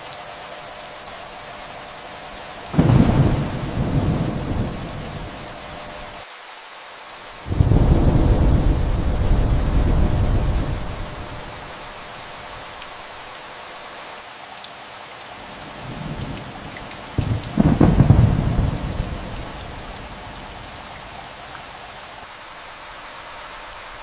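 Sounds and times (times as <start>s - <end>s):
steady rain falling: 0.0s - 24.0s
thunder rumbling: 2.7s - 6.2s, 7.5s - 12.0s, 17.2s - 20.7s.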